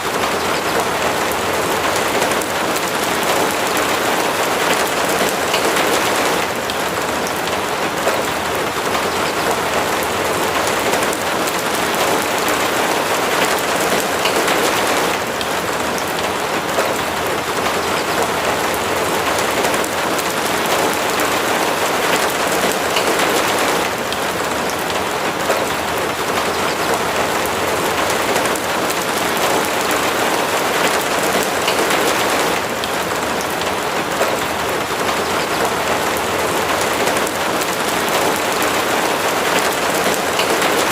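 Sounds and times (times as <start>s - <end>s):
steady rain hiss: 0.0s - 40.9s
faint raindrop ticks: 0.1s - 40.9s.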